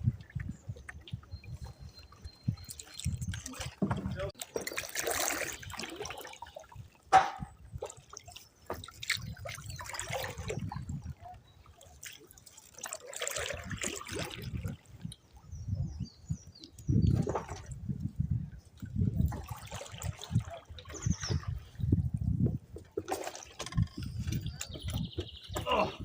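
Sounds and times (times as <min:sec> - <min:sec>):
paddle water swishing: 0:00.0 - 0:15.6, 0:18.6 - 0:22.0, 0:22.6 - 0:26.0.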